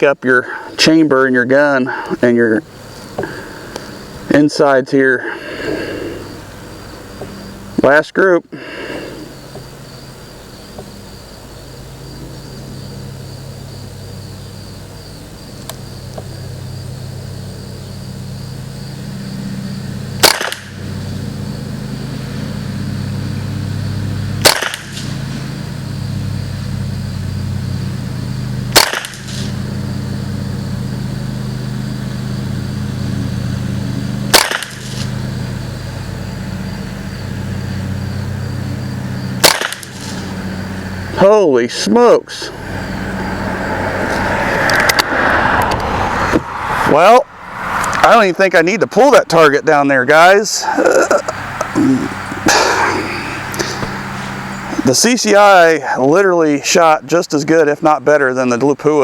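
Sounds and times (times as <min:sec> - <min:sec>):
steady low hum: 0:00.0 - 0:59.0
rifle shots: 0:20.2 - 0:20.8, 0:24.4 - 0:25.2, 0:28.7 - 0:29.6, 0:34.3 - 0:35.1, 0:39.4 - 0:40.2.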